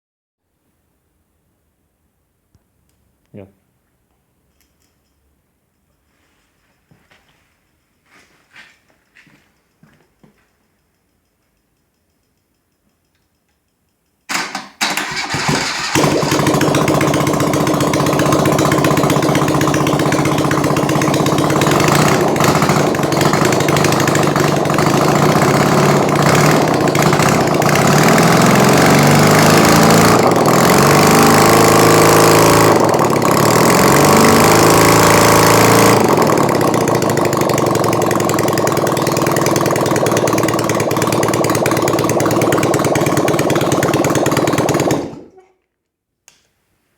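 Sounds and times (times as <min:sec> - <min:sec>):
motorcycle engine starting and idling: 0:14.3 - 0:45.6.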